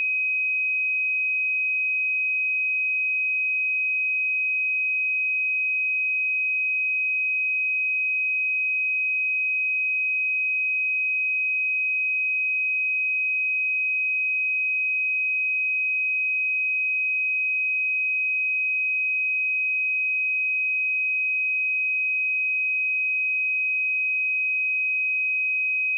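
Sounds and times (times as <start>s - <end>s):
sine-wave test tone: 0.0s - 25.9s.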